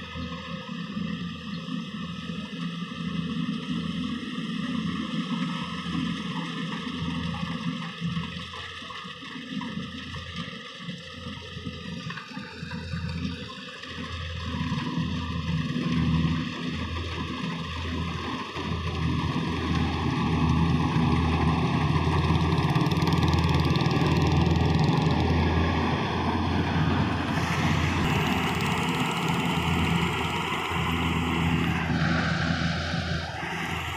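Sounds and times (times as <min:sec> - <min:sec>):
combine harvester running: 0:00.0 - 0:33.9.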